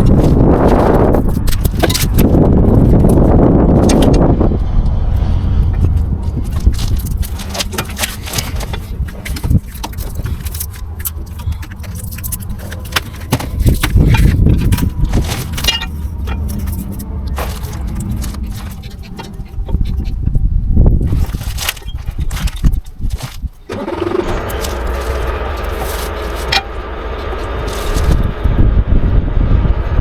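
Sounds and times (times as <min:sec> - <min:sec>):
low steady rumble: 0:00.0 - 0:30.0
metallic clinks and knocks: 0:06.5 - 0:20.0.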